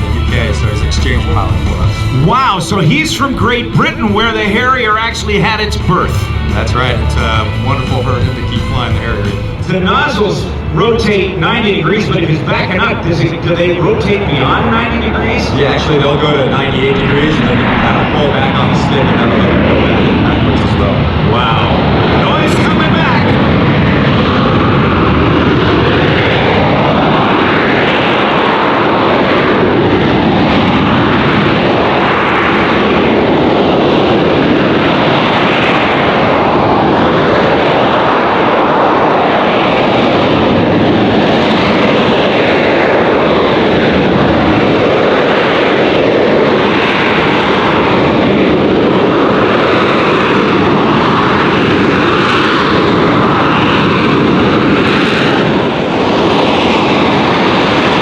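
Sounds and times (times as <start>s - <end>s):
hovering jet engine noise: 0.0s - 58.0s.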